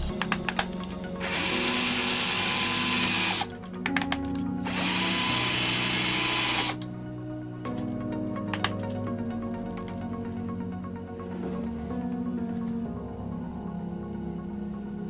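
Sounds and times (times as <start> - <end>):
cordless drill spinning: 0.0 - 3.6, 4.7 - 6.8
drill clicks: 0.0 - 6.9
background music: 0.0 - 15.0.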